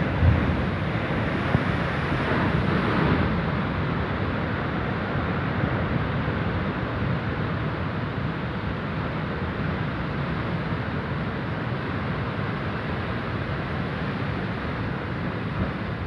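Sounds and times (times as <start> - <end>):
wind buffeting microphone: 0.0 - 3.4.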